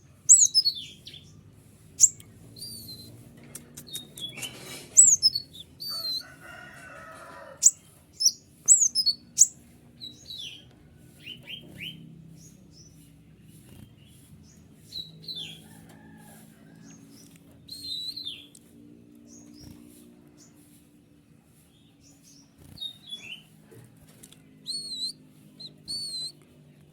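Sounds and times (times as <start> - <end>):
bird singing high whistles: 0.3 - 0.9, 3.9 - 5.4, 7.6 - 9.5, 17.7 - 18.4, 24.7 - 26.4
scratchy bird chattering: 0.3 - 1.2, 1.9 - 6.4, 7.6 - 10.6, 24.7 - 26.3.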